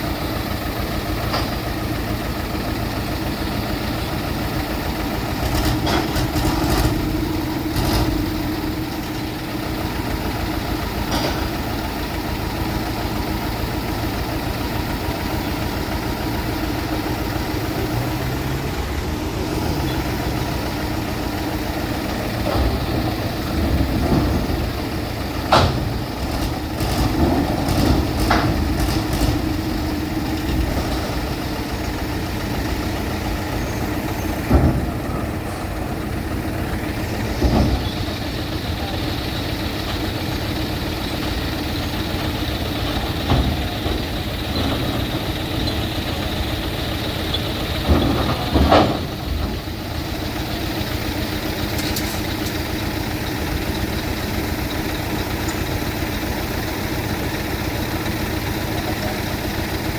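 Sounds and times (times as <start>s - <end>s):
diesel engine idling: 0.0s - 59.9s
sharp knocks and clanks: 5.4s - 9.4s, 10.5s - 11.7s, 22.2s - 32.0s, 34.3s - 35.8s, 36.8s - 39.0s, 47.6s - 50.2s.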